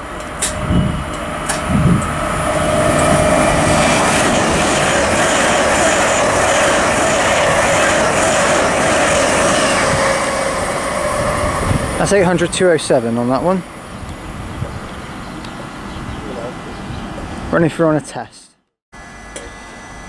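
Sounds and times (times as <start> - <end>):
train wheels rushing on rail: 0.0 - 16.1
constant train whine: 0.0 - 17.6, 19.0 - 20.0.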